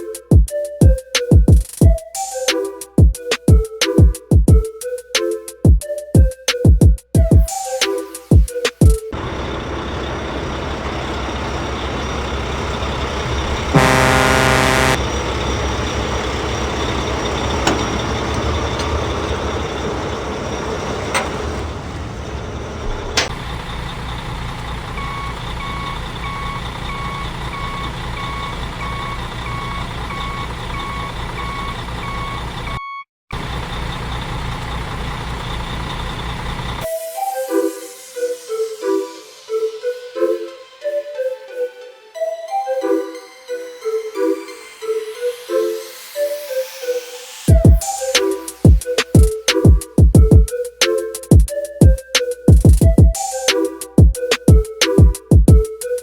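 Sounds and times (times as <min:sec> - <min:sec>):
truck engine running: 0:09.1 - 0:36.9
truck horn blast: 0:09.2 - 0:20.5
reversing beeps: 0:09.2 - 0:36.9.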